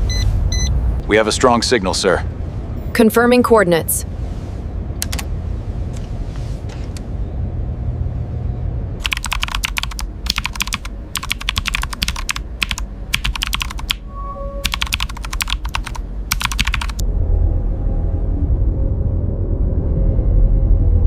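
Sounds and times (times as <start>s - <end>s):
keyboard typing: 5.0s - 5.3s, 9.0s - 14.0s, 14.6s - 17.0s
electronic tone: 14.0s - 14.7s.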